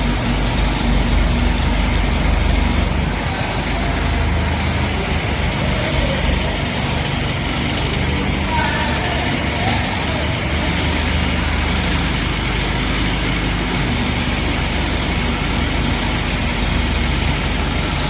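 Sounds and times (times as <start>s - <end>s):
machine humming: 0.0s - 18.0s.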